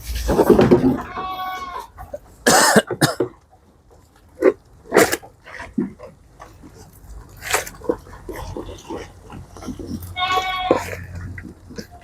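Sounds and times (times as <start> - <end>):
harsh coughs: 2.4 - 3.3.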